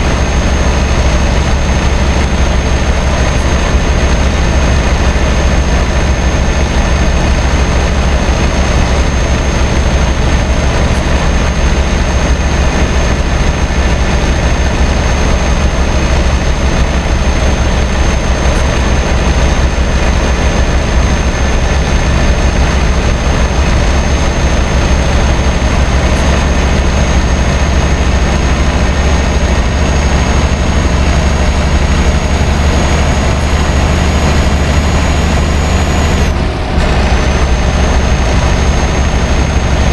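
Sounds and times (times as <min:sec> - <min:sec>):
diesel truck engine drone: 0:00.0 - 0:39.9
high whine: 0:00.0 - 0:39.9
road noise: 0:00.0 - 0:39.9.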